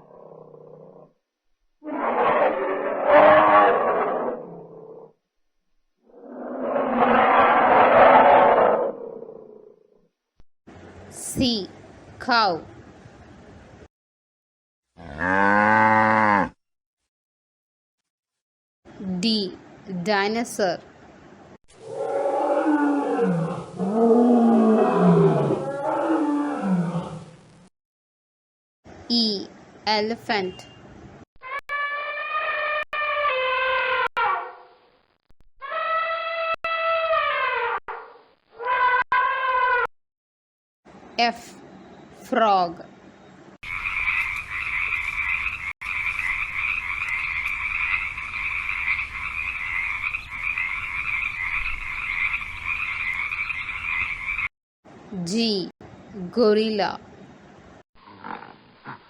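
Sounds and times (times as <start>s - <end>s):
dinosaur roars: 0.0s - 1.1s, 1.8s - 5.1s, 6.0s - 10.0s, 15.0s - 16.5s, 21.8s - 27.4s, 58.0s - 58.6s
frogs croaking: 43.2s - 54.5s.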